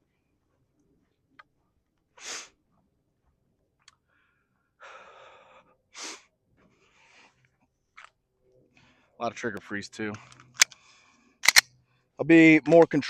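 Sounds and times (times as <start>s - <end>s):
short sharp breaths: 4.0s - 7.4s, 8.7s - 9.2s, 10.2s - 12.2s.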